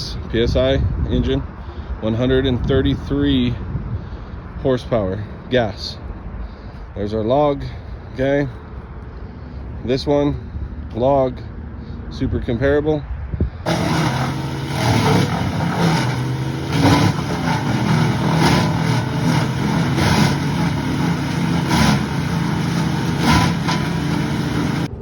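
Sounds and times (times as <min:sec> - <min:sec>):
wood chipper engine drone: 0:13.7 - 0:25.0
wood cracking in chipper: 0:13.7 - 0:25.0.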